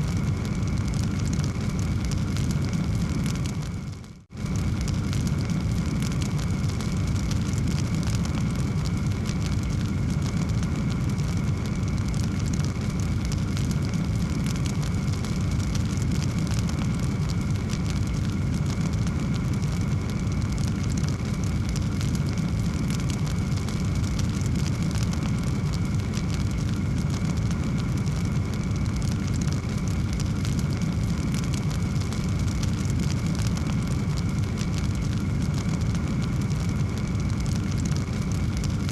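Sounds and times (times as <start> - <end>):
low roar of flames: 0.0 - 38.9
wood fire crackling: 0.0 - 38.9.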